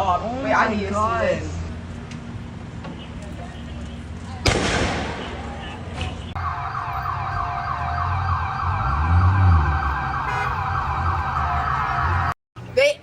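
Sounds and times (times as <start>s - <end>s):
siren yelping: 6.4s - 12.4s.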